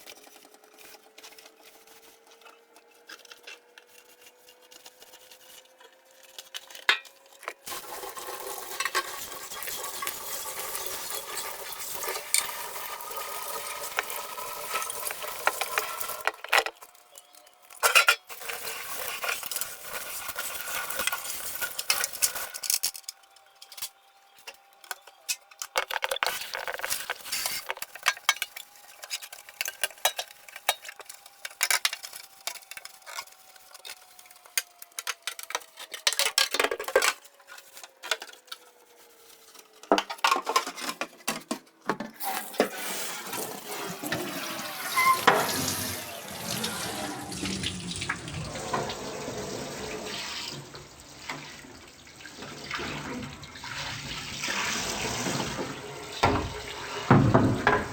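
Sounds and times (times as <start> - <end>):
tap running into a sink: 42.2 - 49.0, 52.4 - 57.9.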